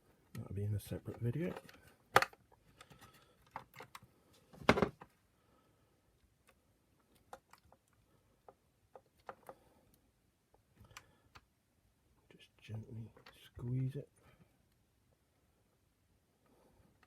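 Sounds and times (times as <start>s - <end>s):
plastic parts clattering: 1.0s - 5.1s
plastic parts clicking: 1.1s - 4.1s, 6.4s - 9.6s.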